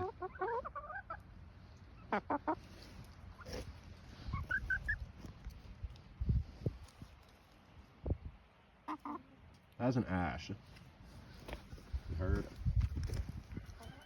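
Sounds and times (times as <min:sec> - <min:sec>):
chicken squawks: 0:00.0 - 0:01.2, 0:02.0 - 0:02.7, 0:03.4 - 0:05.1, 0:08.8 - 0:09.4
chickens calling: 0:00.0 - 0:05.6, 0:08.7 - 0:09.7, 0:11.0 - 0:14.0
soft high peeps: 0:04.2 - 0:05.1.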